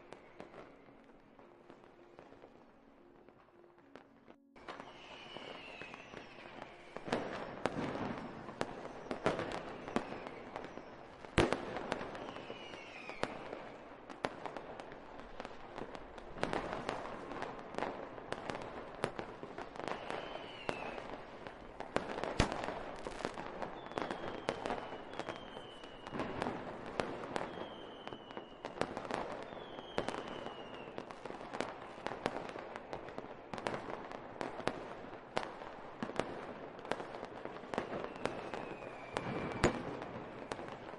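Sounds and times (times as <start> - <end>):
fireworks bangs and crackling: 0.0 - 40.9
falling firework whistles: 4.6 - 13.6, 19.7 - 21.6, 22.2 - 31.2, 37.6 - 40.9.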